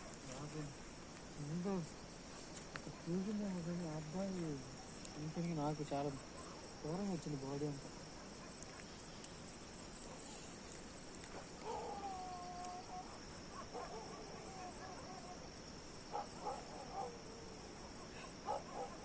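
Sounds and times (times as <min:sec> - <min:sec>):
crickets trilling: 0:00.0 - 0:19.0
faint distant animal calls: 0:07.8 - 0:19.0.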